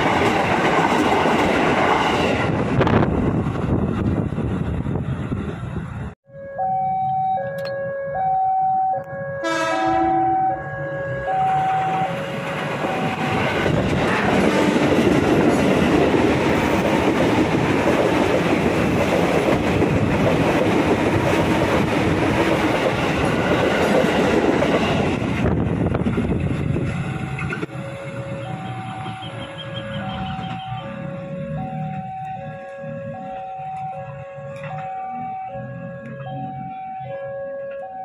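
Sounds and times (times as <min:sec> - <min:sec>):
train passing with rushing noise: 0:00.0 - 0:06.2, 0:09.1 - 0:37.0
alternating warning notes: 0:06.3 - 0:14.1, 0:25.8 - 0:38.0
train horn blast: 0:09.3 - 0:12.4.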